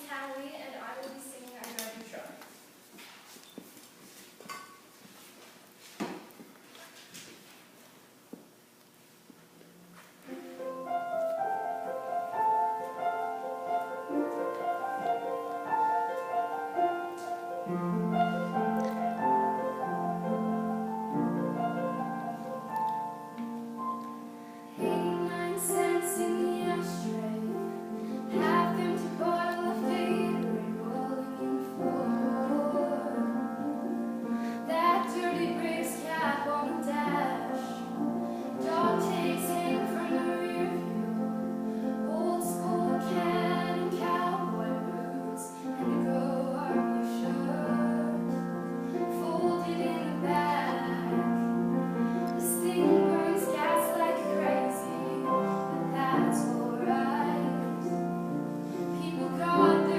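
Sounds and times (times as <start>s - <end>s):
piano accompaniment: 10.2s - 59.9s
woman singing: 24.8s - 34.0s, 34.6s - 41.2s, 42.0s - 48.4s, 49.0s - 51.3s, 52.4s - 58.0s, 58.8s - 59.9s.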